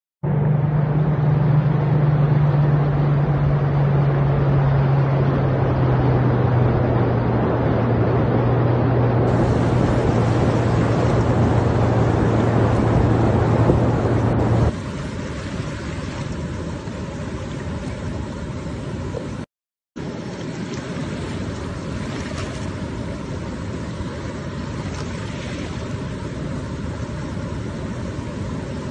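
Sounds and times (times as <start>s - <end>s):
low engine hum: 0.2s - 28.9s
heavy rain: 9.3s - 17.5s
rushing flood water: 9.3s - 28.9s.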